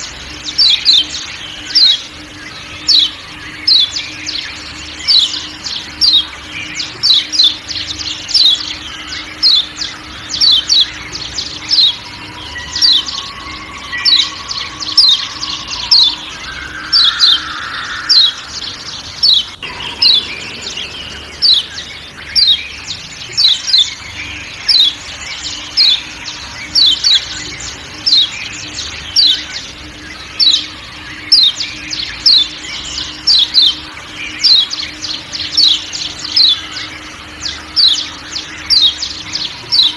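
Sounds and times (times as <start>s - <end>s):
faint forest ambience: 0.0s - 39.9s
bird giving sharp calls: 9.4s - 30.7s.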